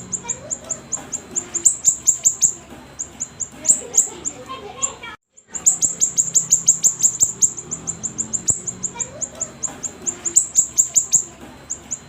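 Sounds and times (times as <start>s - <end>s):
songbird singing high thin notes: 5.5s - 12.0s.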